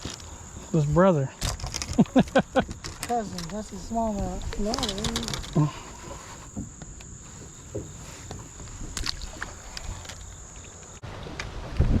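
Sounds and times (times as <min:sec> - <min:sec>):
steady hiss: 0:00.0 - 0:11.0
light knocks from boat: 0:06.0 - 0:12.0.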